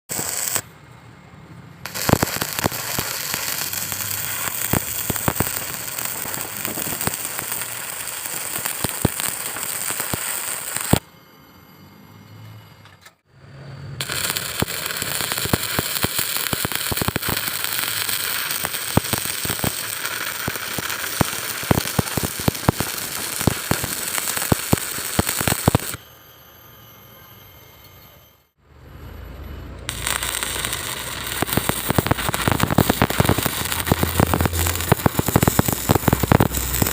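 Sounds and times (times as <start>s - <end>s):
welding arc crackling and popping: 0.0s - 0.7s, 1.8s - 11.0s, 14.0s - 26.0s, 29.9s - 36.9s.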